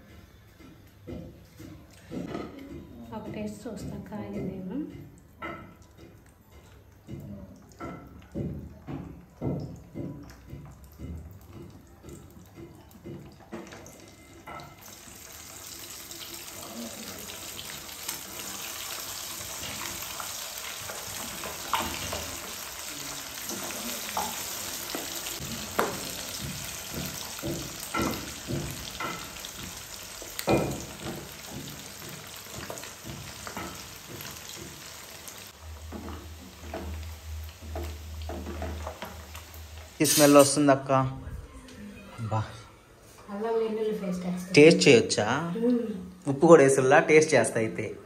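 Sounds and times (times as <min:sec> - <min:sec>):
chicken sizzling in hot oil: 0:13.8 - 0:40.7.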